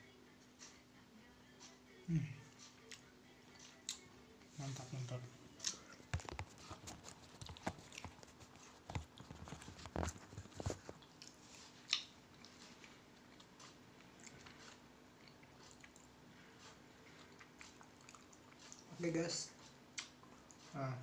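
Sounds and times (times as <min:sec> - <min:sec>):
person chewing crunchy chocolate: 0:05.6 - 0:19.0.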